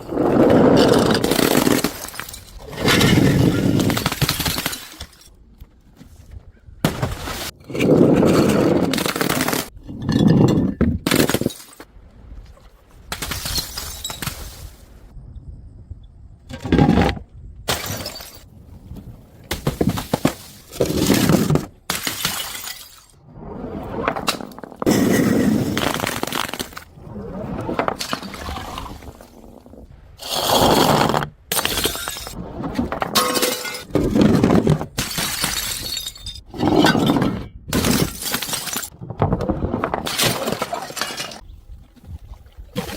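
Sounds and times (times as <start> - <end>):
glass bottles smashing: 1.3 - 5.3, 13.2 - 14.4, 17.7 - 18.5, 19.7 - 23.2, 31.5 - 32.4, 33.1 - 37.2, 37.8 - 38.9.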